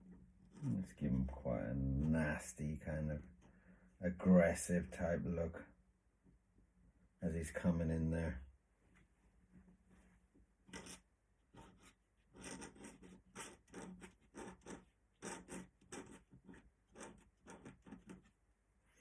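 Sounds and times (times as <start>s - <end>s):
ink pen scratching on paper: 10.7s - 11.0s, 11.6s - 18.4s.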